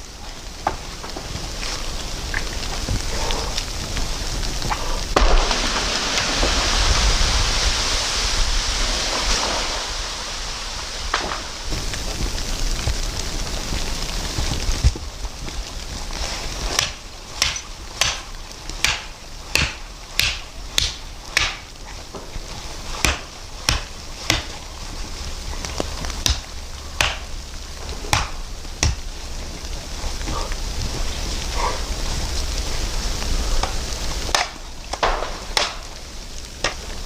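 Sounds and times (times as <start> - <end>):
steady hiss: 0.0 - 37.0
sharp knocks: 18.8 - 21.7, 28.1 - 29.0.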